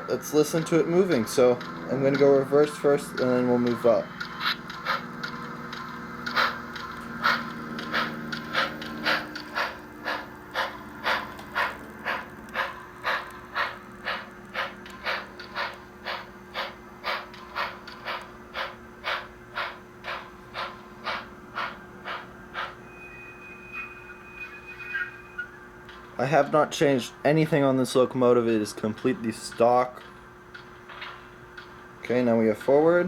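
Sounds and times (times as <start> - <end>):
model steam locomotive chuffs: 6.2 - 23.1.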